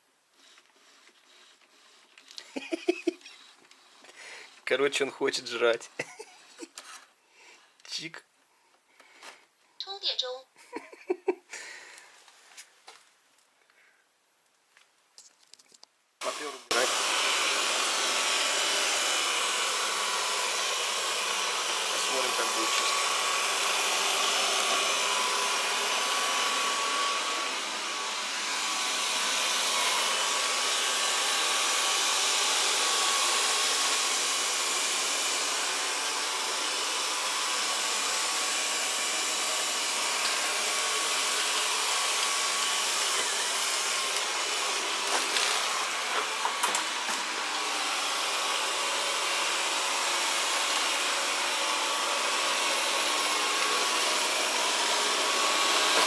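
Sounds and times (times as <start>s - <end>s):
robot vacuum whirring: 0.4s - 4.1s, 16.2s - 56.0s.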